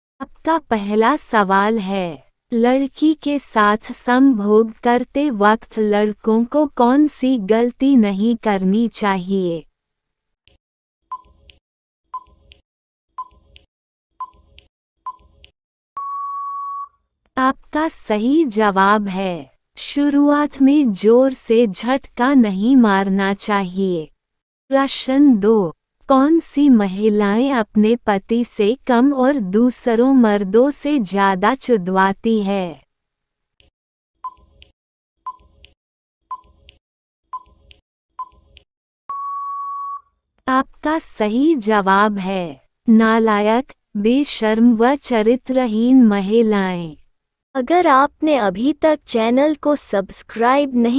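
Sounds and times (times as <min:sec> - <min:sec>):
electronic timer ticks: 0:11.1 - 0:11.6, 0:12.2 - 0:12.6, 0:34.2 - 0:34.7, 0:35.3 - 0:38.7
short beep tones: 0:16.0 - 0:17.0, 0:39.1 - 0:40.1.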